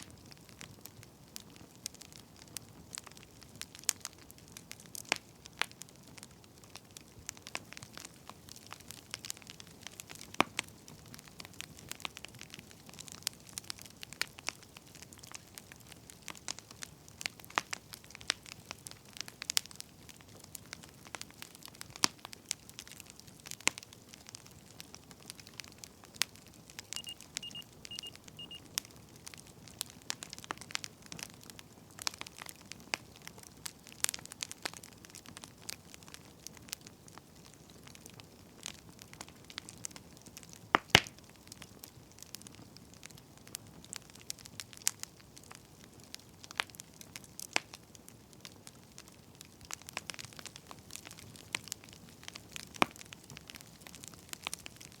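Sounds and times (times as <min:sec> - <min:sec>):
faint steady hiss: 0:00.0 - 0:55.0
wood fire crackling: 0:00.0 - 0:55.0
short high beeps: 0:27.0 - 0:28.6.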